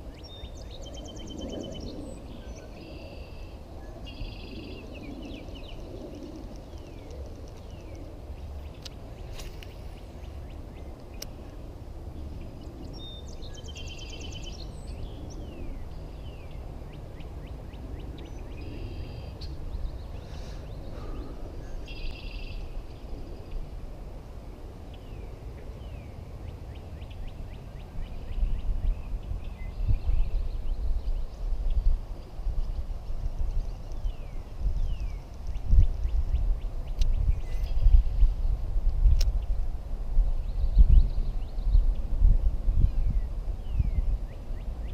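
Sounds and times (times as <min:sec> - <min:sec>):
birds trilling and chirping: 0:00.0 - 0:23.8
low gusty rumble: 0:00.0 - 0:44.9.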